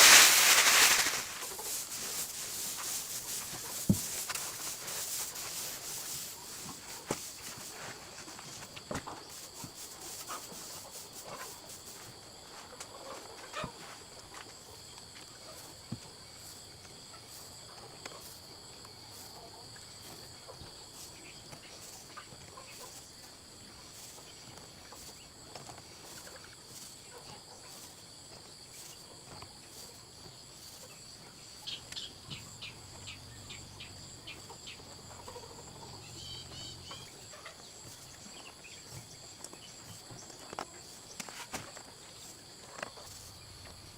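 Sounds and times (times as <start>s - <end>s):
high-pitched insect chorus: 0.0s - 12.7s.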